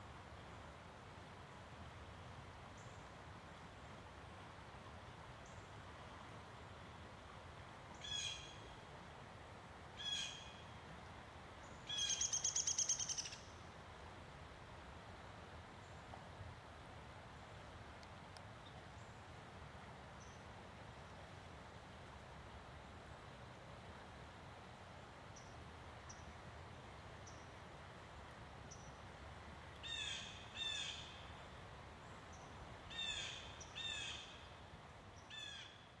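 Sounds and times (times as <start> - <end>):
faint high bird chirps: 11.8 - 13.5.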